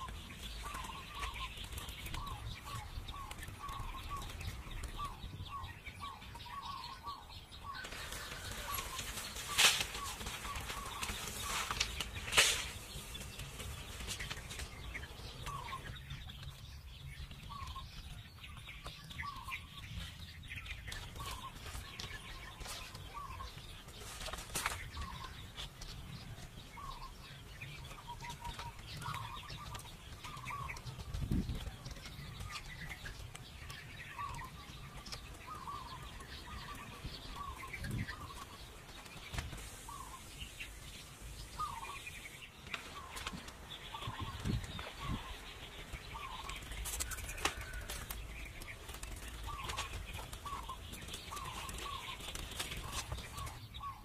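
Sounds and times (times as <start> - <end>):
bird chirping: 0.0 - 54.0.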